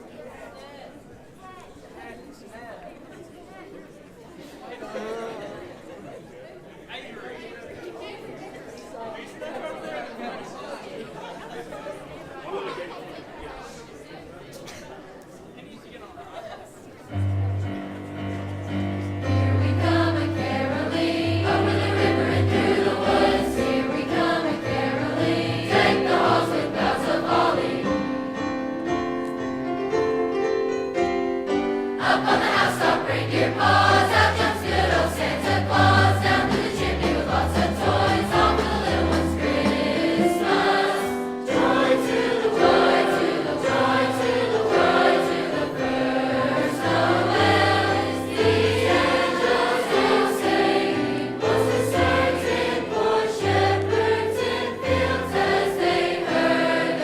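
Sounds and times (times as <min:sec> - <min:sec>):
choir singing a christmas song: 0:17.2 - 0:29.1, 0:31.5 - 0:57.0
musical accompaniment with bass: 0:32.5 - 0:40.8.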